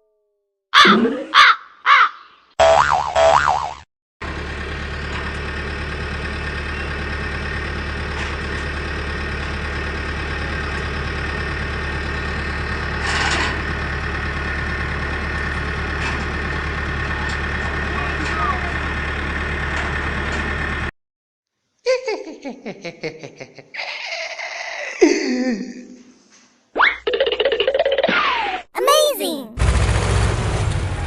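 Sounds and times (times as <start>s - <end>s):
warbling cartoon sound effect: 2.6s - 3.8s, 28.8s - 29.6s
engine idling with deep hum: 4.2s - 20.8s.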